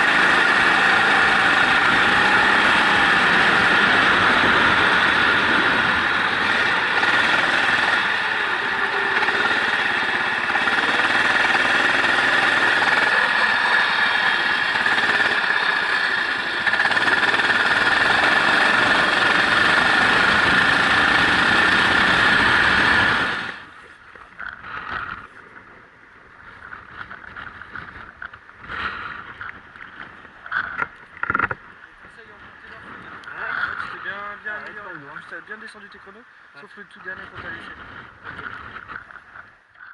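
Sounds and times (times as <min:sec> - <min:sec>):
race car engine at speed: 0:00.0 - 0:23.8.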